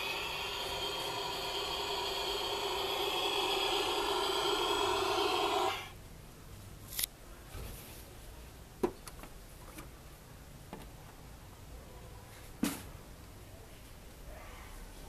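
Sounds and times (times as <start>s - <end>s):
toy airplane engine hum: 0.0s - 5.9s.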